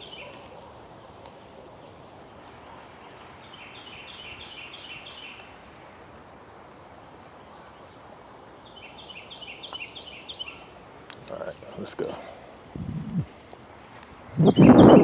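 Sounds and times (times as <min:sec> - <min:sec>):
outdoor background hiss: 0:00.0 - 0:15.0
songbird singing high notes: 0:03.1 - 0:05.5, 0:14.4 - 0:15.0.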